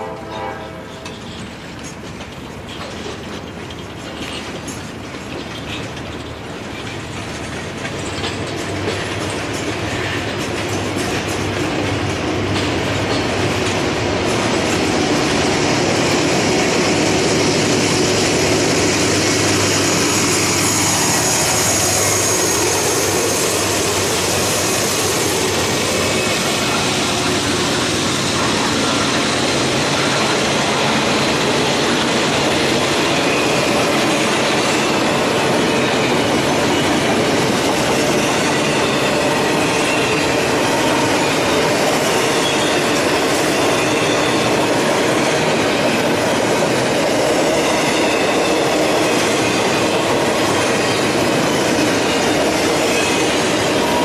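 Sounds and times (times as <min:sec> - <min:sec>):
freight train rumbling and rattling: 0:00.0 - 0:54.0
high wheel squeal: 0:16.2 - 0:46.4, 0:47.0 - 0:54.0.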